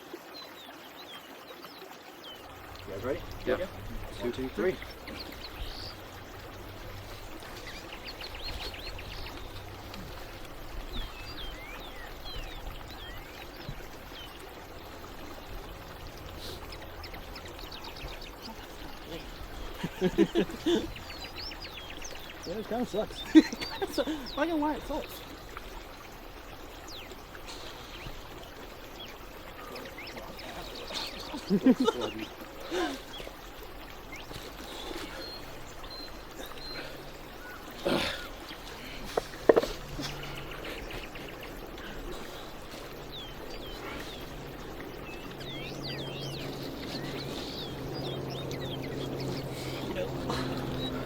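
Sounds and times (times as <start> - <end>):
creek water running: 0.0 - 51.0.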